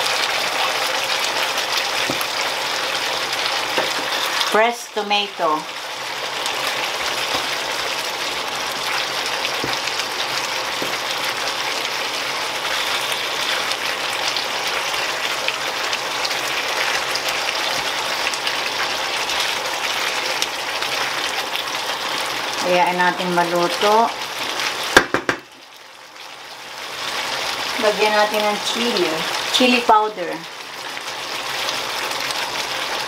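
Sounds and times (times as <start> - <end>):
food sizzling in a frying pan: 0.0 - 33.0
spatula stirring in a pan: 6.1 - 15.2.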